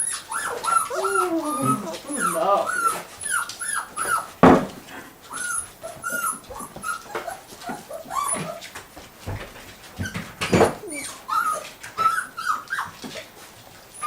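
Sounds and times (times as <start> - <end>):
puppies whimpering and squeaking: 0.0 - 14.0
loud knock: 4.4 - 4.8.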